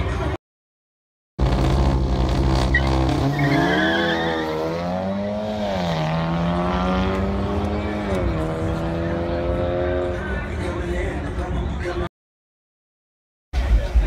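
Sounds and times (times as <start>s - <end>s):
car engines accelerating: 1.4s - 12.1s.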